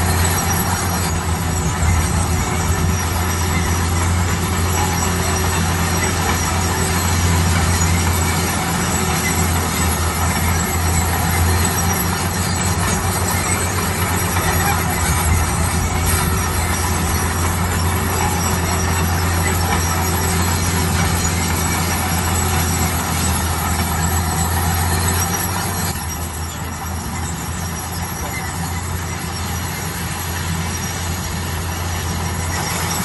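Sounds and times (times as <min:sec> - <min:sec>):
construction machine diesel engine: 0:00.0 - 0:33.0.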